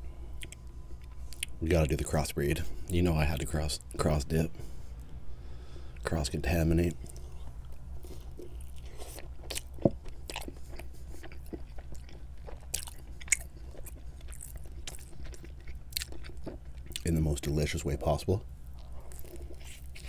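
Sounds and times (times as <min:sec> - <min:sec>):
pizza chewing: 0:05.6 - 0:17.8, 0:18.6 - 0:20.0.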